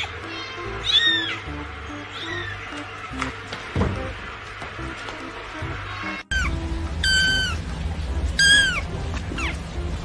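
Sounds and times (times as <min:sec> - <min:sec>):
cat meowing: 0:00.0 - 0:01.5.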